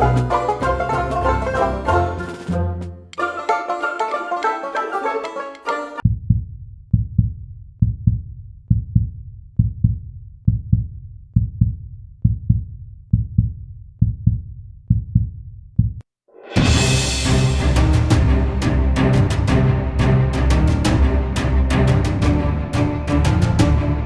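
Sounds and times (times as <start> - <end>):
banjo tune: 0.0 - 6.0, 16.4 - 24.0
music track: 0.0 - 6.0, 16.4 - 24.0
heartbeat thumps: 6.1 - 16.0.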